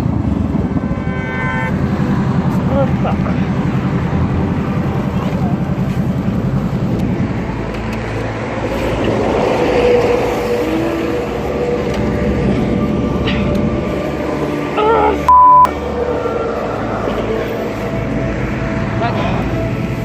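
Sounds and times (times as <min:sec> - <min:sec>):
motorcycle running: 0:00.0 - 0:20.0
road and wind noise: 0:00.0 - 0:20.0
loud high beep: 0:15.3 - 0:15.7.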